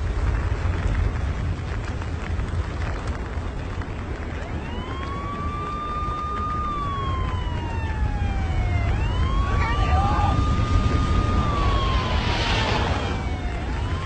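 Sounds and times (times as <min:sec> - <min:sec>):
loud low rumbling: 0:00.0 - 0:14.0
siren wailing: 0:04.2 - 0:14.0.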